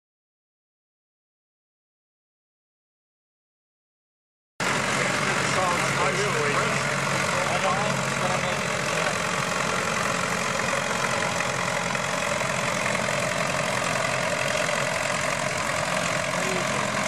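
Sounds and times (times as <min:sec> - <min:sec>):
tractor engine running under load: 0:04.6 - 0:17.0.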